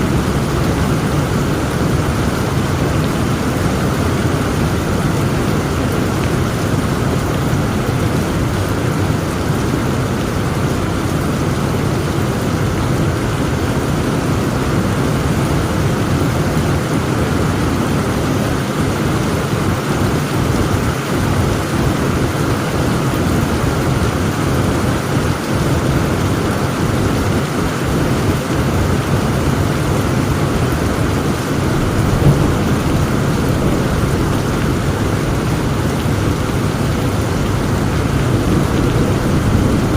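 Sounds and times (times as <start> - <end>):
low rumble of thunder: 0.0 - 7.5, 28.6 - 39.9
heavy rain pouring: 0.0 - 39.9.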